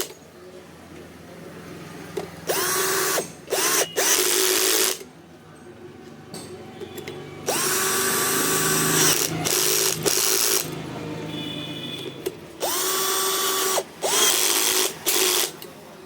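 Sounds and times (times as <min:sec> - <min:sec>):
electric drill motor whining: 0:02.5 - 0:05.0, 0:07.4 - 0:10.8, 0:12.6 - 0:15.6.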